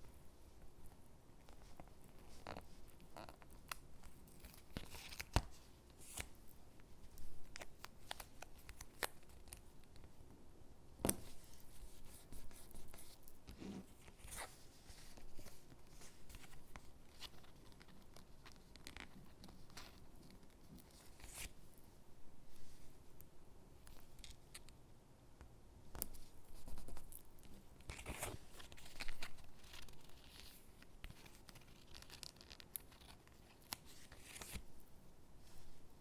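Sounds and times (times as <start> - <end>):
stickers peeling and paper rustling: 26.0 - 34.6.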